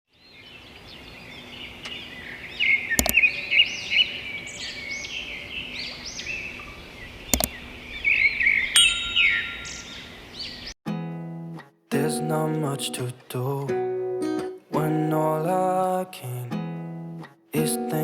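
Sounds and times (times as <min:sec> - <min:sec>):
small birds chirping: 0:00.1 - 0:10.8
sharp double click: 0:03.0 - 0:03.2, 0:07.3 - 0:07.6.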